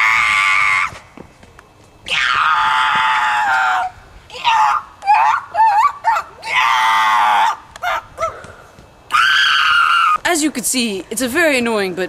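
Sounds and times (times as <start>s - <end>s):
person screeching like a bird: 2.1s - 8.4s, 9.1s - 10.2s.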